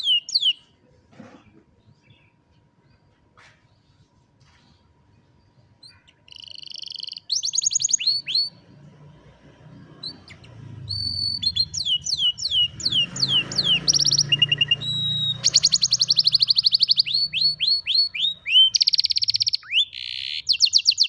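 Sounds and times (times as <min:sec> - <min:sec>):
canary singing: 0:00.0 - 0:00.7, 0:05.7 - 0:21.0.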